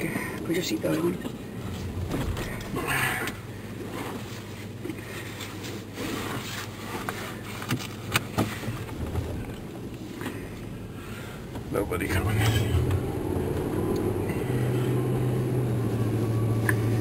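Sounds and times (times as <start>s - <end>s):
vehicle engine running: 0.0s - 17.0s
rustling scrape: 3.8s - 9.1s.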